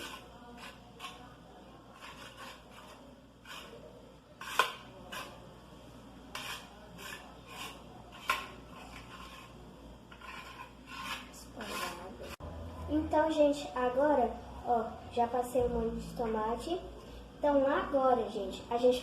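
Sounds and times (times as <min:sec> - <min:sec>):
utensil scraping a dish: 0:00.0 - 0:05.5, 0:06.3 - 0:12.4.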